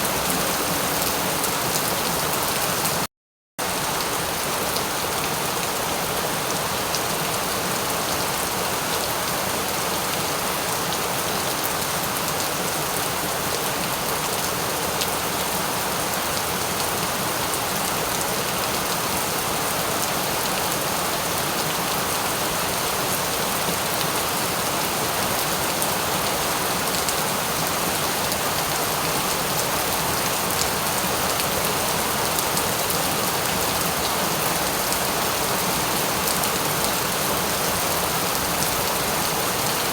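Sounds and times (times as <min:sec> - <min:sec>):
steady rain hiss: 0:00.0 - 0:03.0.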